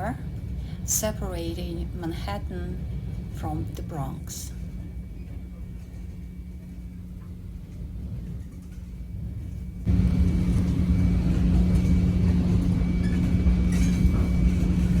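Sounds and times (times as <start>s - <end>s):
train rumble and hum: 0.0s - 15.0s.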